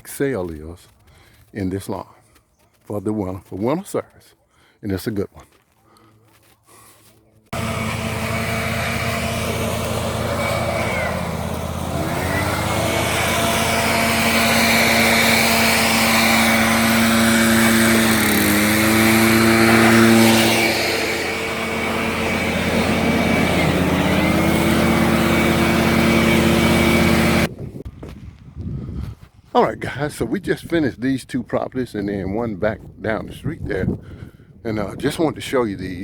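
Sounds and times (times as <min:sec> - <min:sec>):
engine running at high speed: 0:07.6 - 0:27.5.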